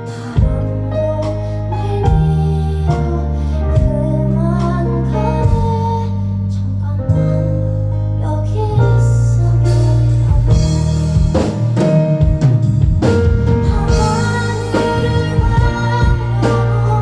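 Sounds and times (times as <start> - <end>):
drum kit playing: 0.0 - 3.2, 3.8 - 6.0, 9.5 - 17.0
electric guitar playing: 9.1 - 17.0.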